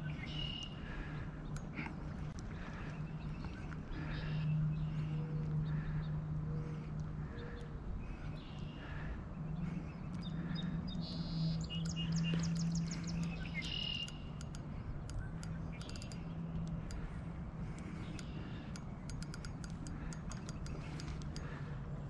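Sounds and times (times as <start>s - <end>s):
low hum: 0.0s - 22.0s
small birds chirping: 0.0s - 22.0s
sharp clicks: 0.3s - 4.2s, 10.0s - 21.7s.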